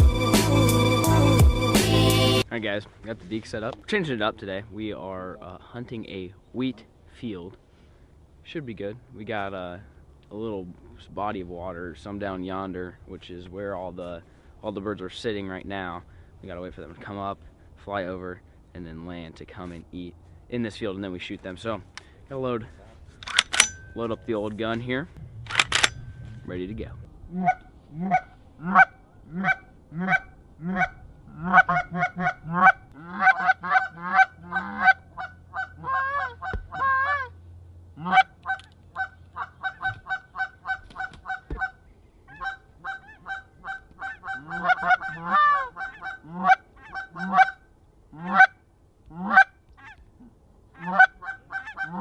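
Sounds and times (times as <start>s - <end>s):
geese honking: 27.3s - 37.4s, 38.0s - 50.0s, 50.8s - 52.0s.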